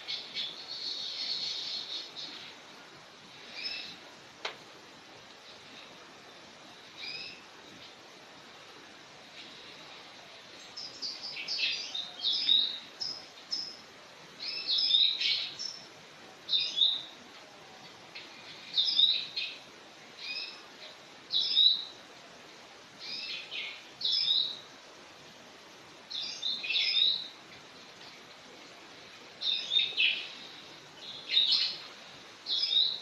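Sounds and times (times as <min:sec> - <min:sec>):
bird chirping: 0:00.0 - 0:02.6, 0:03.4 - 0:04.1, 0:07.0 - 0:07.5, 0:10.5 - 0:17.2, 0:18.2 - 0:22.0, 0:23.0 - 0:24.7, 0:26.1 - 0:27.4, 0:29.4 - 0:33.0.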